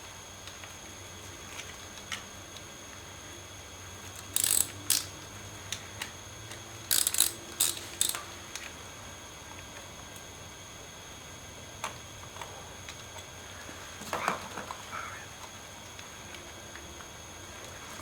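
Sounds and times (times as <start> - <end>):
ratchet wrench clicking: 4.2 - 5.3, 6.9 - 8.3.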